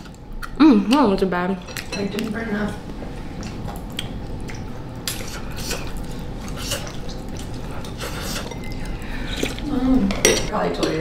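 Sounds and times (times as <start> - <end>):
low room hum: 0.0 - 11.0
wet mouth chewing clicks: 3.4 - 9.6.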